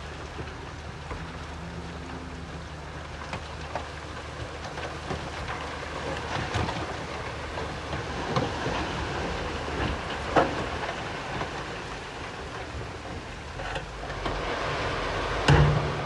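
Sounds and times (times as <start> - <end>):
bulldozer diesel engine running: 11.8 - 16.0
stone and metal knocks: 15.5 - 16.0.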